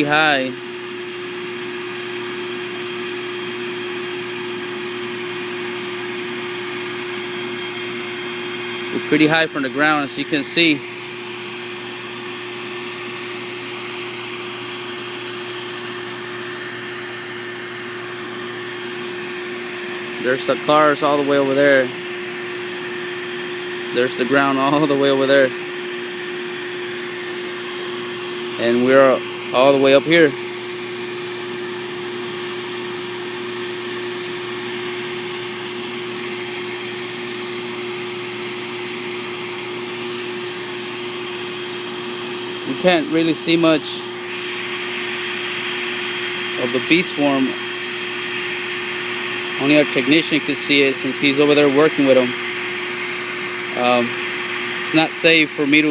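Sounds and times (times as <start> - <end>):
machinery hum: 15.6 - 30.6, 42.5 - 55.9.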